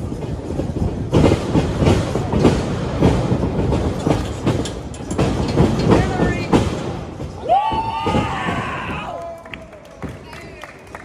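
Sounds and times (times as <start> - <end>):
wrestling ring thumps and knocks: 0.5 - 9.1.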